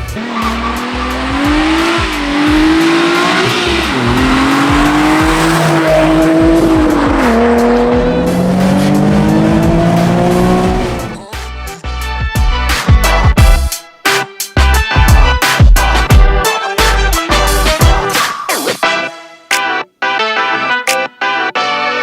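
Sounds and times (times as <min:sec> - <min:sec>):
car engine revving hard: 0:00.0 - 0:11.2
tyres squealing: 0:00.0 - 0:11.2.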